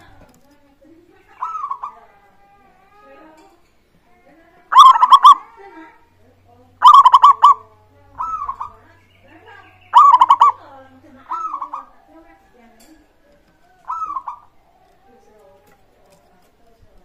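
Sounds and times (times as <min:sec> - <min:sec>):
dove cooing: 0:01.2 - 0:02.1, 0:04.7 - 0:06.0, 0:06.8 - 0:17.0.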